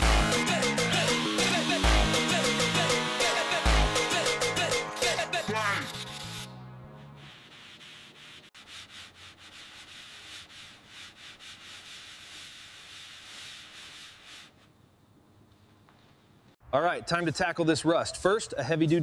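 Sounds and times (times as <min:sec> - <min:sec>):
rubbing strokes on a surface: 0:07.0 - 0:14.8.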